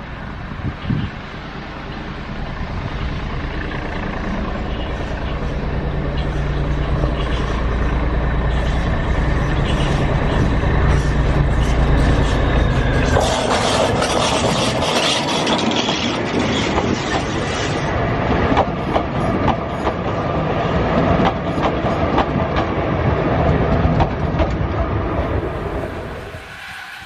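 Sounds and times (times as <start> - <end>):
train engine drone: 0.0 - 27.0
train wheels on rails rushing: 0.0 - 27.0.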